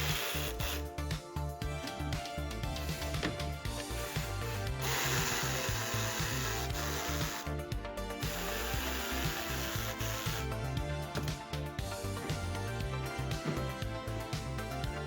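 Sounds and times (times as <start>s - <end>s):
power tool hissing: 0.0s - 0.9s, 3.1s - 7.6s, 8.2s - 10.6s
background music with beat: 0.0s - 15.0s.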